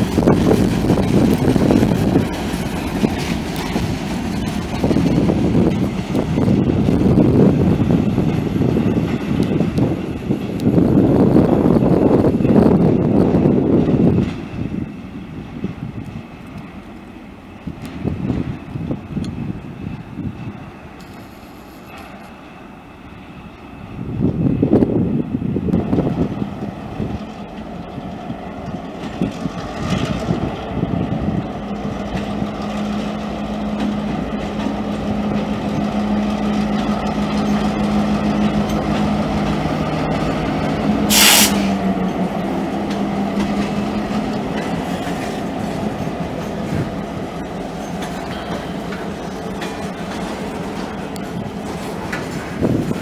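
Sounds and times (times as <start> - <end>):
diesel locomotive engine drone: 0.0 - 53.0
wheels rumbling on rail: 0.0 - 53.0
compressed air hiss: 41.1 - 41.8.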